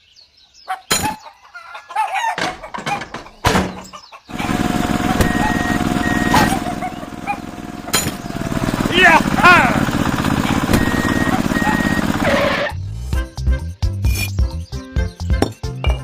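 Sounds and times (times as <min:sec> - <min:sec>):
chickens clucking: 0:00.7 - 0:08.4
small vehicle engine running: 0:04.3 - 0:12.8.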